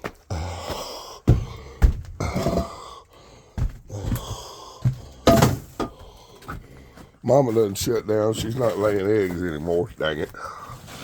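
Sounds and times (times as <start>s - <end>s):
man breathing heavily and grunting: 0.0s - 7.2s, 10.3s - 11.0s
sharp thumps: 5.2s - 5.9s.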